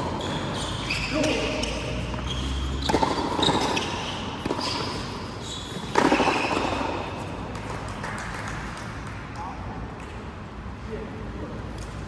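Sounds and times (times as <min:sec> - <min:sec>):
sneakers squeaking on floor: 0:00.0 - 0:07.4
racket striking ball: 0:00.0 - 0:07.7.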